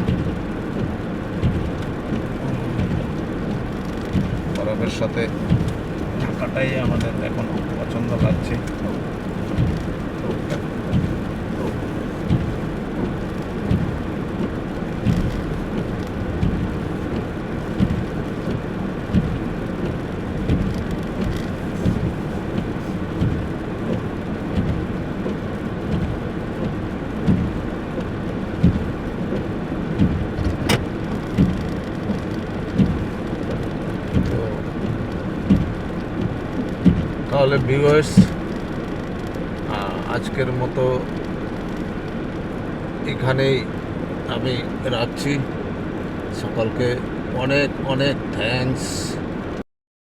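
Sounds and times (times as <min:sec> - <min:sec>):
road and engine noise inside car: 0:00.0 - 0:49.6
soft thump: 0:30.0 - 0:31.6.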